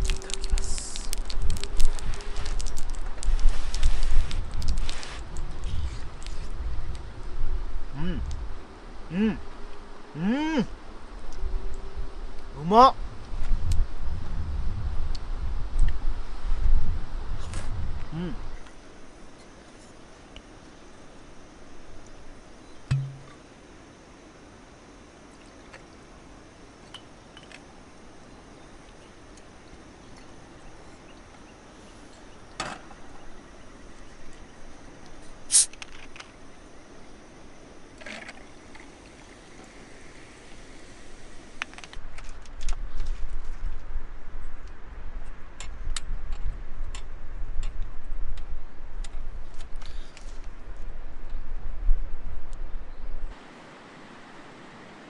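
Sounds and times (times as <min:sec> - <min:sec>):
fire pops: 0:00.0 - 0:06.4, 0:35.5 - 0:36.4
campfire crackling: 0:00.0 - 0:09.8, 0:24.3 - 0:43.4
steady background hiss: 0:00.0 - 0:43.3, 0:46.7 - 0:55.0
sharp knock: 0:22.9 - 0:23.3.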